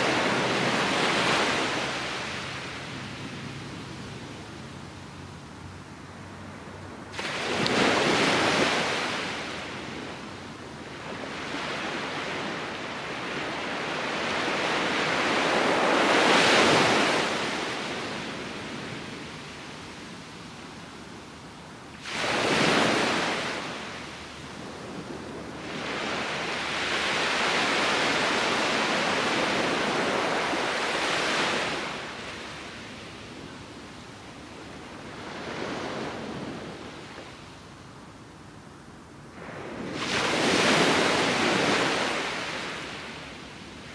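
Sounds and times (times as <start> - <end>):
ocean surf breaking: 0.0 - 3.1, 7.1 - 9.9, 11.2 - 18.6, 22.0 - 24.0, 25.0 - 33.2, 39.4 - 43.9.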